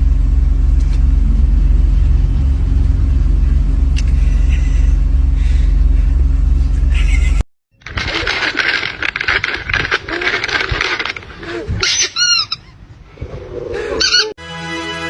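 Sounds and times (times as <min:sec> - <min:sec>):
deep low rumbling drone: 0:00.0 - 0:11.7.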